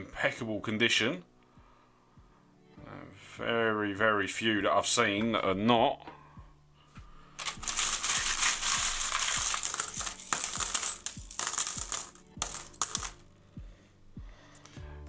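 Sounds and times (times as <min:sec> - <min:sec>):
coins jingling and clinking: 0:07.4 - 0:13.3.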